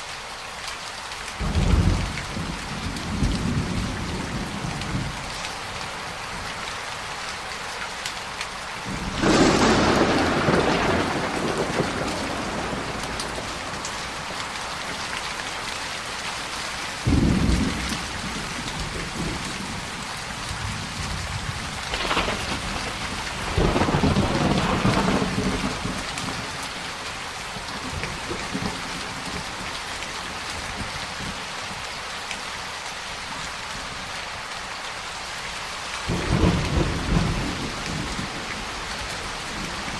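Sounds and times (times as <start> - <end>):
heavy rain falling: 0.0 - 39.9
thunder rumbling: 8.9 - 15.0, 17.0 - 20.0, 20.6 - 26.8, 36.1 - 39.9.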